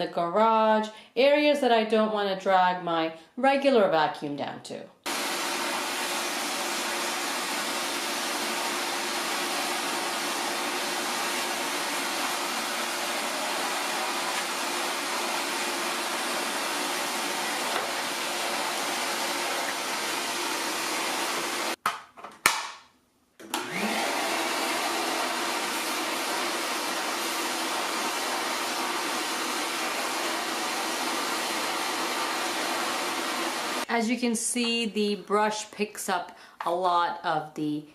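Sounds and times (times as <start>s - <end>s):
shop vacuum running: 5.1s - 21.8s, 23.4s - 33.9s.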